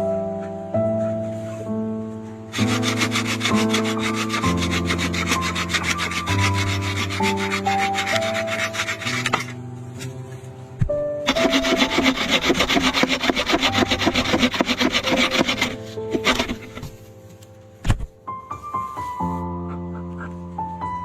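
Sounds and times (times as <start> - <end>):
slow background music: 0.0 - 21.0
hand tool rasping wood: 2.5 - 9.6, 11.3 - 17.0.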